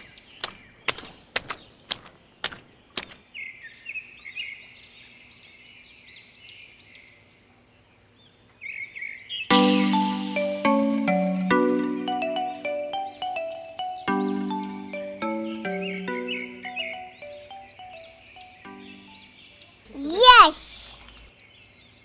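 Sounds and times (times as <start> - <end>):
small birds chirping: 0.0 - 22.0
music with bell-like mallet notes: 9.5 - 19.3.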